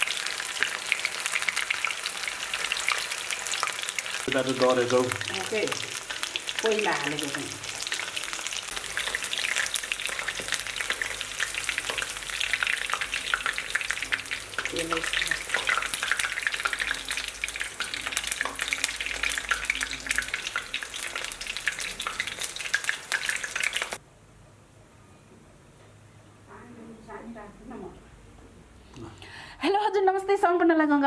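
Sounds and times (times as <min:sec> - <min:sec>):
meat frying in hot oil: 0:00.0 - 0:24.0.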